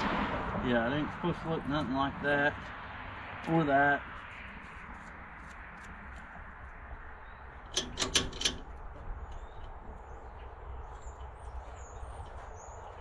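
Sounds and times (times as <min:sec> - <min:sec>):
sharp metallic clicks: 0:07.6 - 0:09.8.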